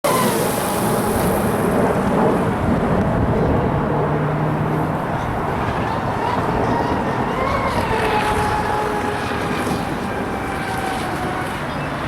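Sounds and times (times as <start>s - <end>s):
wind rumbling on microphone: 0.1s - 12.0s
toy boat motor whine: 5.8s - 12.0s.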